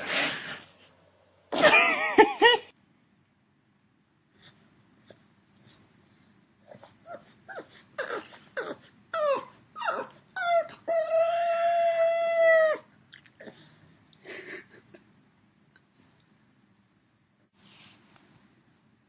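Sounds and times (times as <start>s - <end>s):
dog whining: 6.7s - 13.7s
dog howling: 8.0s - 12.9s.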